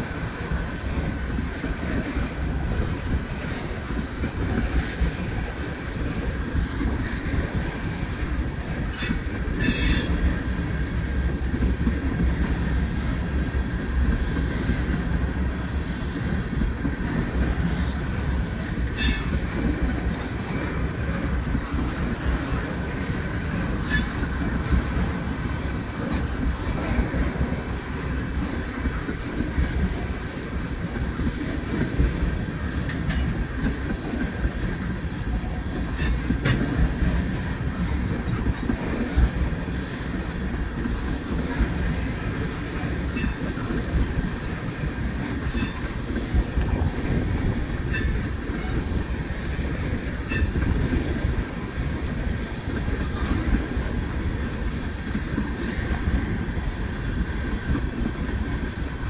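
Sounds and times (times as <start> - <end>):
freight train wheels rumbling: 0.0 - 59.0
faint wheel squeal: 8.9 - 10.3, 19.0 - 19.4, 23.8 - 24.3.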